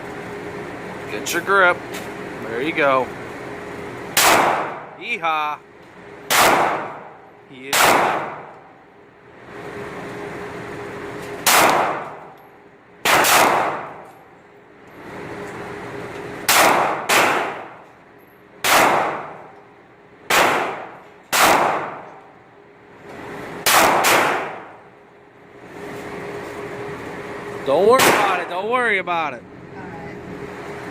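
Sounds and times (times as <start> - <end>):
steady hum: 0.0 - 30.9
pistol shots echoing: 4.2 - 4.9, 6.3 - 8.6, 11.4 - 12.3, 13.0 - 14.1, 16.5 - 17.8, 18.6 - 19.6, 20.3 - 22.3, 23.6 - 24.8, 28.0 - 28.6.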